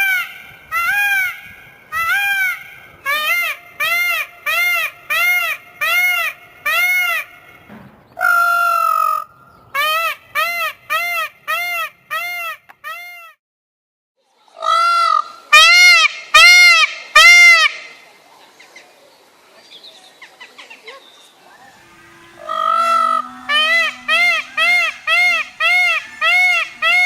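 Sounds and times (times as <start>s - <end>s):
bird honking: 0.0s - 9.2s, 21.6s - 27.0s.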